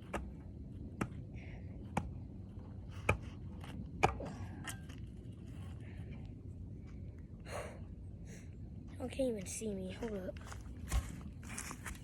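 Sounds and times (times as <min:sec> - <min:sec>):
footsteps crunching on dry ground: 0:10.0 - 0:12.0.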